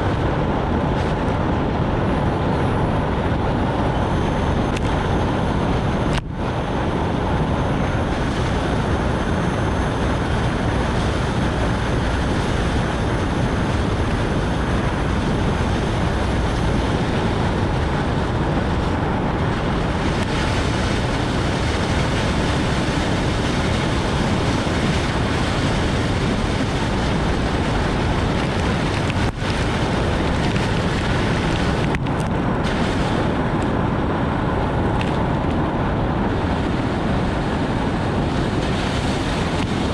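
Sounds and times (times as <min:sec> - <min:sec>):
heavy rain: 0:00.0 - 0:39.9
wind noise: 0:00.0 - 0:39.9
tyre spray on wet road: 0:32.6 - 0:33.8.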